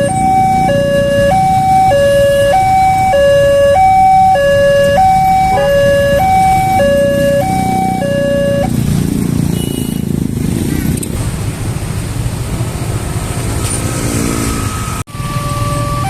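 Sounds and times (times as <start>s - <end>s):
level crossing alarm two tones: 0.0s - 8.7s, 15.1s - 16.0s.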